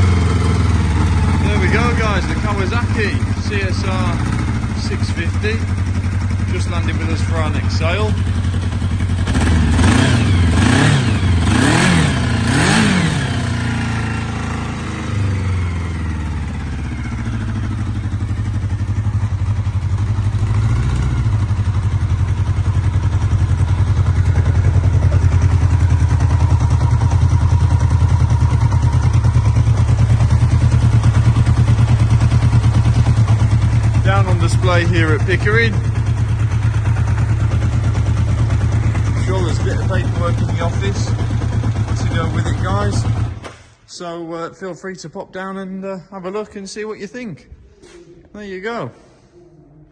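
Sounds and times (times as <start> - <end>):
motorcycle engine revving and idling: 0.0 - 43.9.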